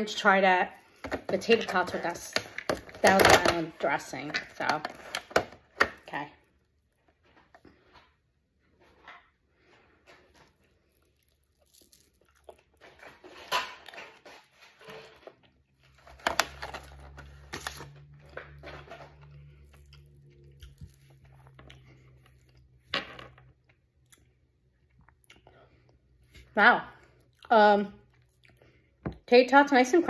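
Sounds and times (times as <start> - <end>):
chewing crunchy food: 10.1 - 16.0, 18.0 - 22.9, 23.5 - 29.2.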